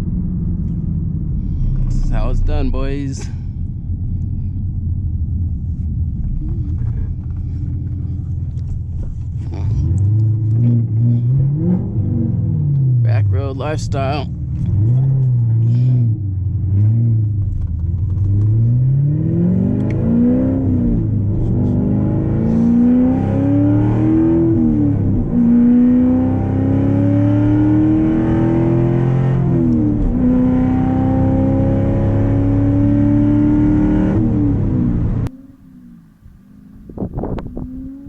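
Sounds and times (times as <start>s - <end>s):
car engine accelerating hard: 0.0s - 38.0s.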